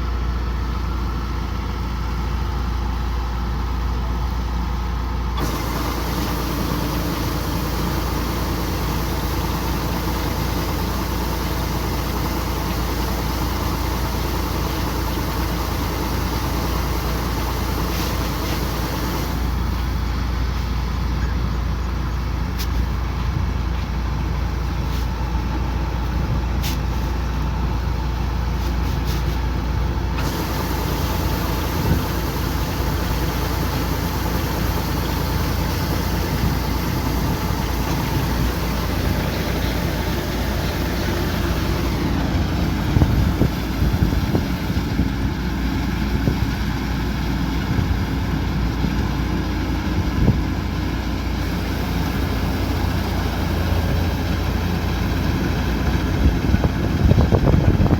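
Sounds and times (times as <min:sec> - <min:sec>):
combine harvester engine drone: 0:00.0 - 0:57.9
machinery noise: 0:05.4 - 0:20.7, 0:30.0 - 0:45.9.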